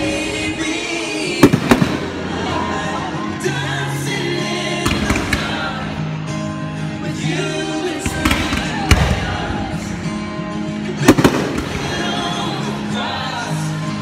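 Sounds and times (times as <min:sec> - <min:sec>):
loud music: 0:00.0 - 0:14.0
fireworks bangs: 0:01.4 - 0:02.2, 0:04.8 - 0:05.8, 0:08.1 - 0:09.6, 0:11.0 - 0:12.4.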